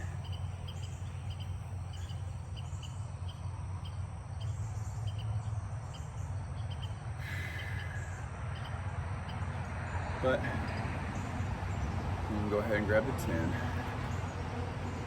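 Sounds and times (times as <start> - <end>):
cricket chirping: 0.0 - 10.0.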